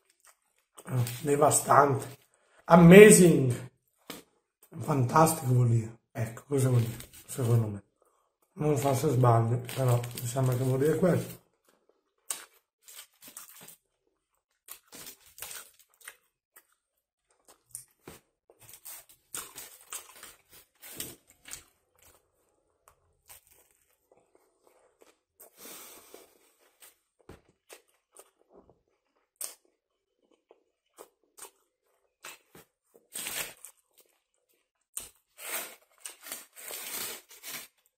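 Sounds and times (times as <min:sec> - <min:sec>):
person chewing food: 0:00.0 - 0:01.2, 0:11.4 - 0:37.6.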